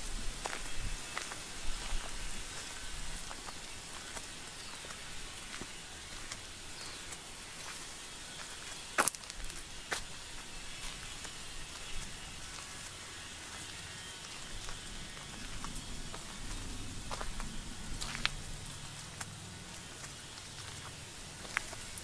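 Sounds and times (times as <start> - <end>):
steady bush hiss: 0.0 - 22.0
low rumble of road traffic: 9.8 - 22.0.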